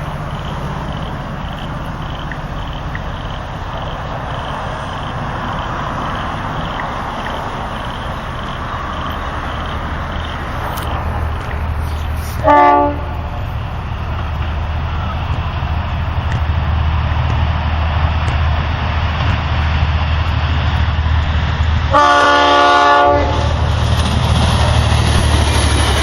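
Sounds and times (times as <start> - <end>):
diesel train engine drone: 0.0 - 26.0
wheels rumbling on rails: 0.0 - 26.0
train horn blast: 12.2 - 13.4, 21.9 - 23.6.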